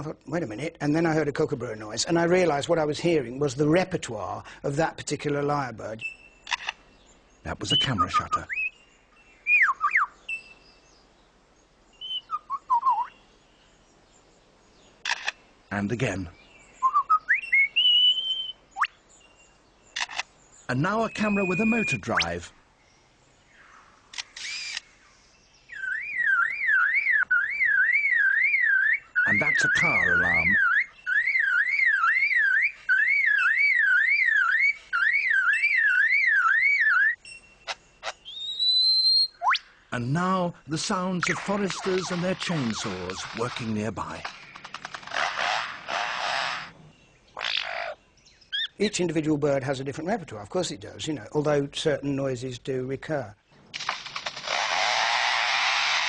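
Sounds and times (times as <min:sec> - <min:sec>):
bird singing whistled notes: 0:05.9 - 0:11.3, 0:11.9 - 0:14.9, 0:16.3 - 0:39.9, 0:46.8 - 0:48.9
lyrebird mimicking a car alarm: 0:20.8 - 0:22.4, 0:25.7 - 0:37.8.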